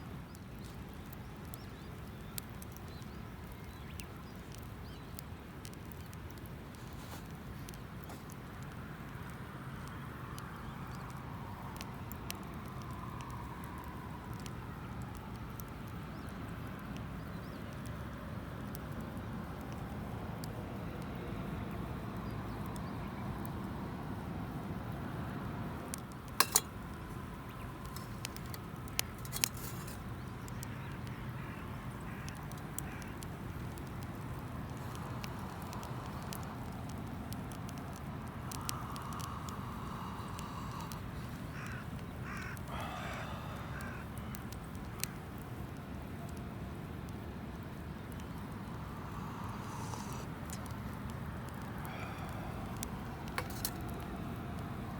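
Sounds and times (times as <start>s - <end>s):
campfire crackling: 0.0s - 54.9s
sharp clicks: 32.2s - 45.1s.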